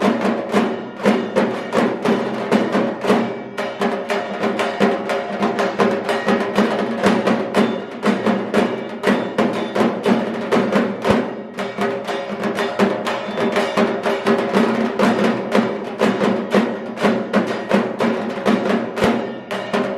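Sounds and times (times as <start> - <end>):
fast drumming: 0.0 - 19.9.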